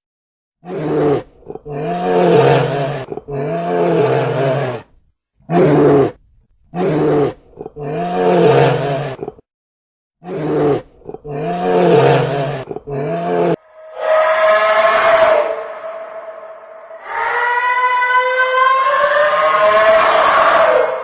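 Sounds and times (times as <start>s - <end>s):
big cat roaring: 0.6s - 4.9s, 5.5s - 9.4s, 10.2s - 15.5s.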